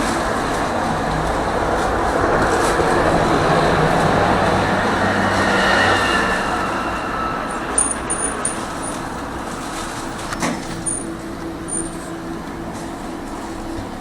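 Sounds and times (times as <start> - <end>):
tram rumbling along: 0.0 - 14.0
high-pitched squeaks: 4.6 - 12.2.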